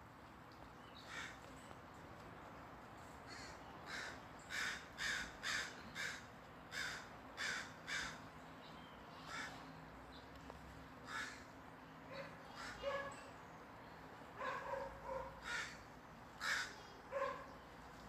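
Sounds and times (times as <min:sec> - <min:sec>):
crows cawing: 0:01.1 - 0:01.4, 0:03.3 - 0:08.3, 0:09.2 - 0:09.6, 0:11.0 - 0:11.6, 0:15.3 - 0:16.9.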